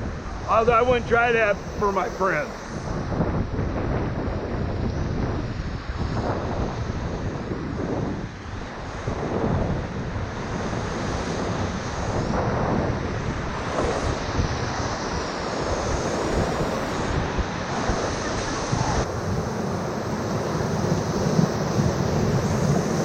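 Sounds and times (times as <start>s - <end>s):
wind buffeting microphone: 0.0s - 23.0s
whitewater rushing: 0.3s - 2.9s.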